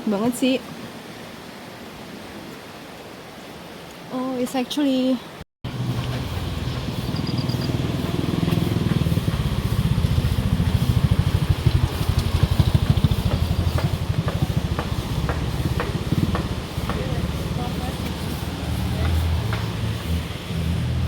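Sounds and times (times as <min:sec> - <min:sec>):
motorcycle engine running: 0:05.7 - 0:21.0.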